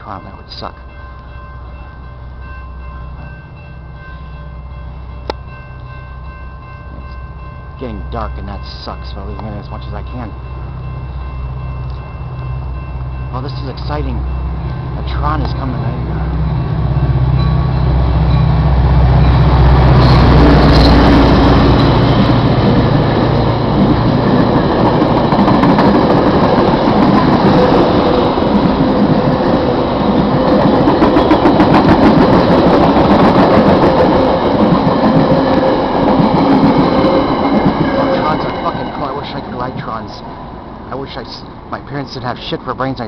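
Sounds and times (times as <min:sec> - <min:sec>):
train cars roaring past: 0:00.0 - 0:43.0
diesel engine drone: 0:14.6 - 0:31.0.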